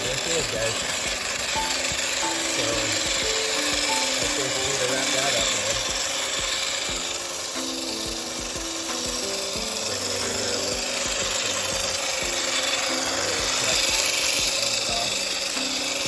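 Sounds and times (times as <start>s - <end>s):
background music: 0.0s - 16.0s
electric motor grinding whir: 0.0s - 16.0s.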